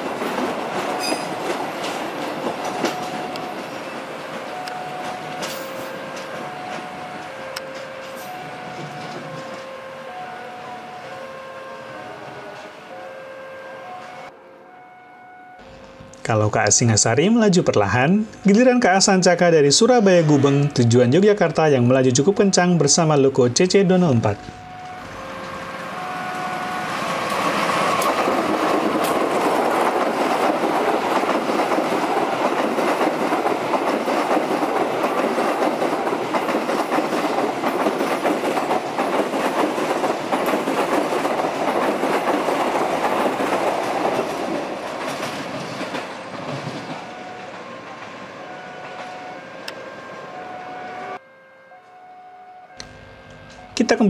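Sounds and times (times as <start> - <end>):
train wheels clattering on rails: 0.0 - 9.8, 24.4 - 48.2
diesel locomotive passing: 0.0 - 54.0.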